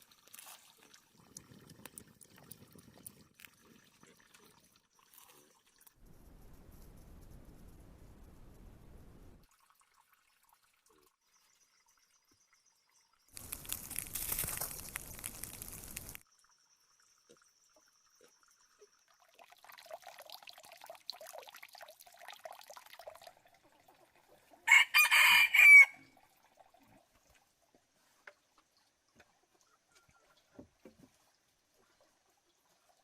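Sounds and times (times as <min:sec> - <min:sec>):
faint scratching: 0:06.0 - 0:09.4.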